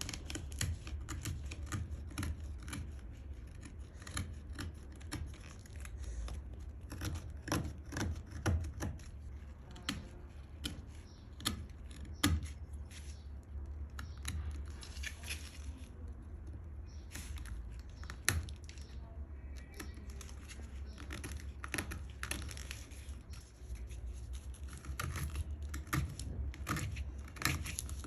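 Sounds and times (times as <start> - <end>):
rasping on wood: 0.0 - 12.6.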